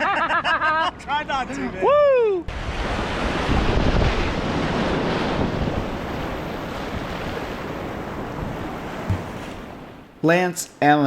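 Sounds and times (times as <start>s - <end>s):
wind buffeting microphone: 1.9s - 10.0s
whitewater rushing: 5.4s - 10.5s.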